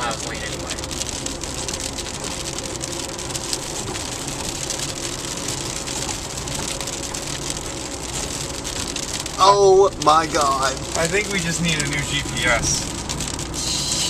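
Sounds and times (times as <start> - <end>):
heavy rain on car roof: 0.0 - 14.0
low road rumble: 0.0 - 14.0.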